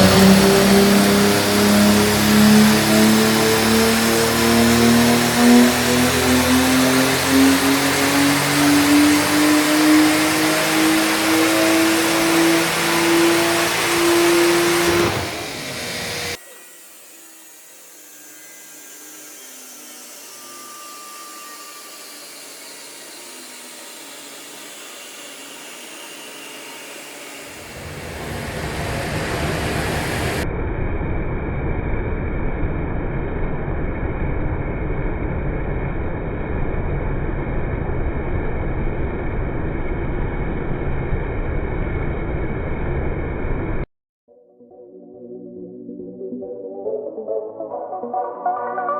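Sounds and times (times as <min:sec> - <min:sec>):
turbocharged engine running hard: 0:00.0 - 0:30.5.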